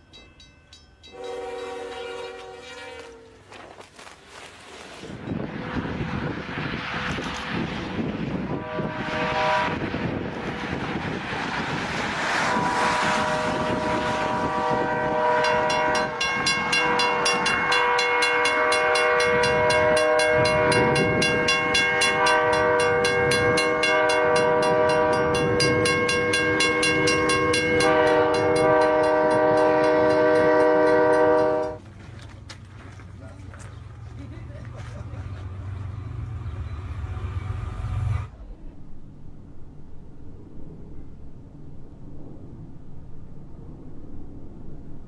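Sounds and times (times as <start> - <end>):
locomotive air horn: 1.1 - 3.6, 8.3 - 10.2, 12.3 - 31.8, 36.8 - 38.6
train rushing through snow: 1.1 - 45.0
clicking of train wheels: 7.0 - 8.2, 15.4 - 37.1.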